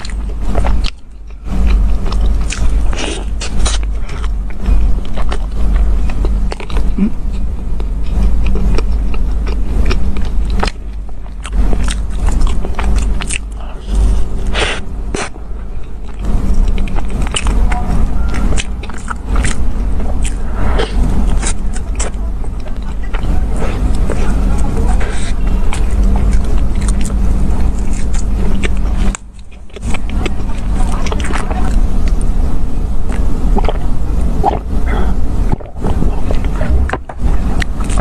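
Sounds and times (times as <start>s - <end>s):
chewing: 0.0s - 38.0s
steady low rumble: 0.0s - 38.0s.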